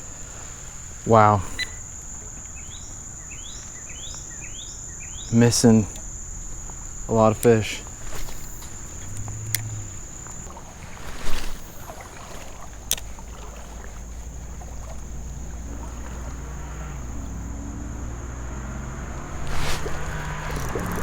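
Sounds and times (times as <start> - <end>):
insect drone: 0.0 - 21.0
moving water rumble: 0.0 - 21.0
wind: 0.0 - 21.0
sharp clicks: 7.3 - 10.4, 12.9 - 13.1, 19.4 - 21.0.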